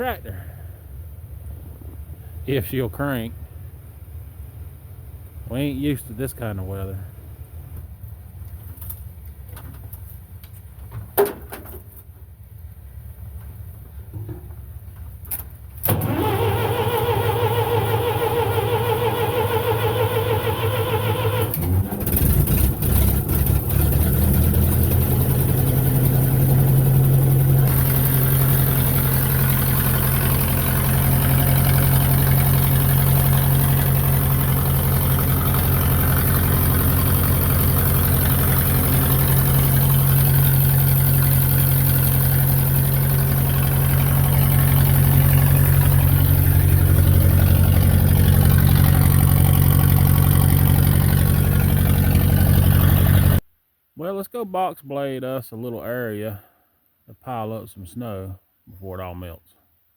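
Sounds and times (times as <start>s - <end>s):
tractor engine idling: 13.0s - 53.4s
starter motor cranking: 15.8s - 53.4s.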